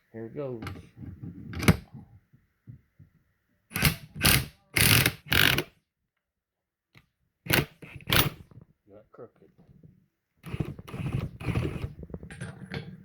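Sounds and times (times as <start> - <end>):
impact wrench bursts: 3.8 - 5.7.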